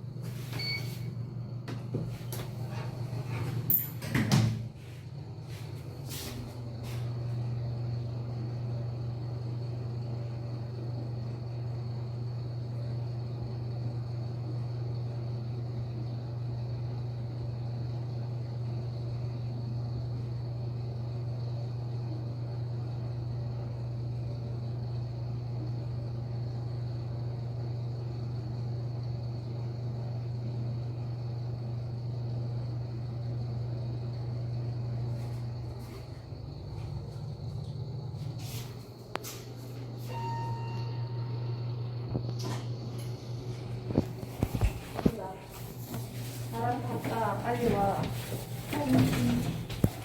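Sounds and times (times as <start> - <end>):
elevator running hum and whine: 0.0 - 50.0
faint high whine: 35.1 - 46.1.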